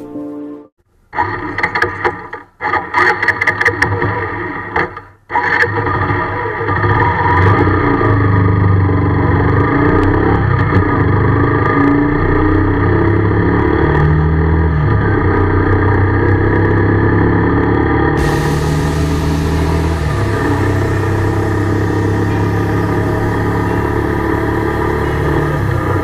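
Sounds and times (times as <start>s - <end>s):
motorcycle engine running: 7.7s - 26.0s.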